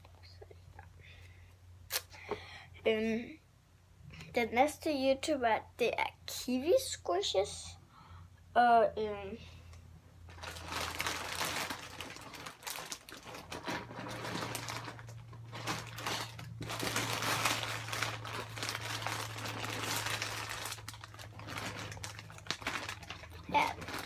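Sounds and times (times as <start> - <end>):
packaging crinkling and rustling: 10.3 - 24.0.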